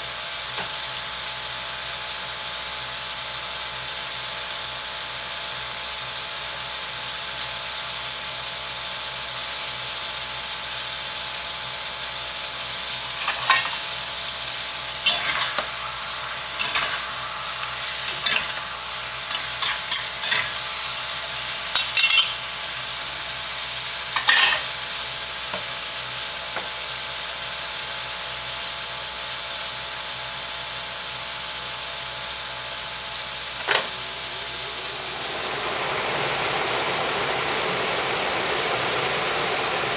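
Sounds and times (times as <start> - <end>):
food sizzling in hot pan: 0.0 - 39.9
scraping stirring strokes: 13.1 - 14.0, 15.0 - 22.4.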